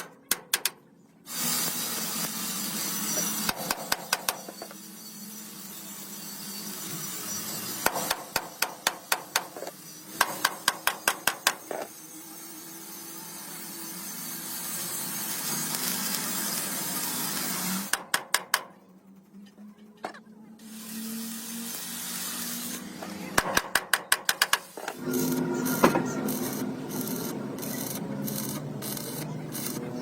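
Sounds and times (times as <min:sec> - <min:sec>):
hammer striking metal: 0:10.2 - 0:11.6.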